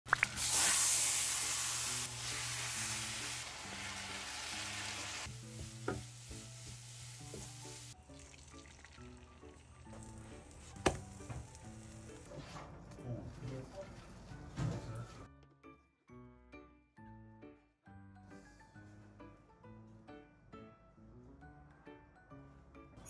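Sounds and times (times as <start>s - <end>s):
meat sizzling in a frying pan: 0.1s - 9.1s
vegetables sizzling softly: 0.1s - 12.3s
soft background music: 0.5s - 23.0s.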